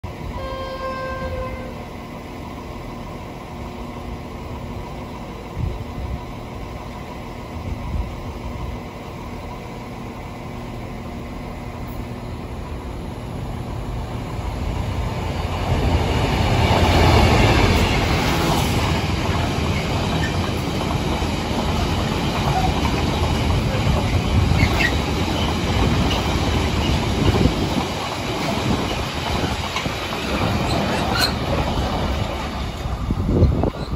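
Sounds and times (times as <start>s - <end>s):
diesel locomotive rumble: 0.0s - 33.9s
train horn note: 0.3s - 1.9s
wagon wheels clattering on rails: 19.3s - 33.9s.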